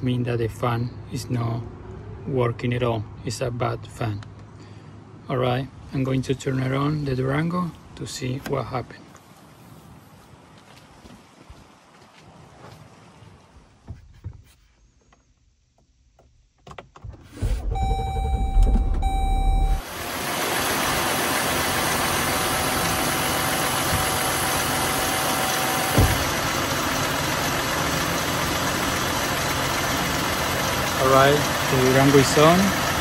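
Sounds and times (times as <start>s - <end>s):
car engine starting and idling: 16.3s - 33.0s.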